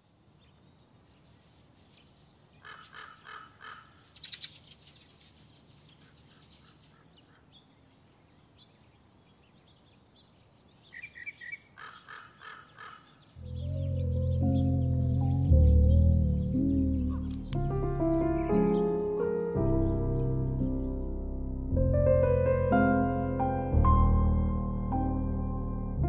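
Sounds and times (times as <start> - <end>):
faint steady background noise: 0.0 - 14.8
harsh bird calls: 1.6 - 20.3
high bird chirps: 10.8 - 21.0
bird trill: 10.9 - 20.9.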